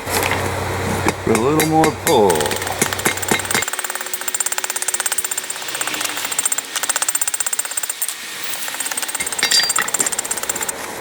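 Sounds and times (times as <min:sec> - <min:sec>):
hammer blows on hot steel: 0:01.0 - 0:07.3.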